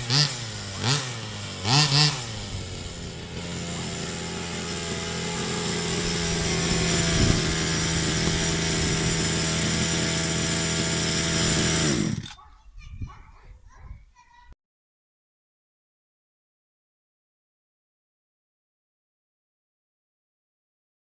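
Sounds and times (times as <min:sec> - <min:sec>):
two-stroke engine revving: 0:00.0 - 0:12.4.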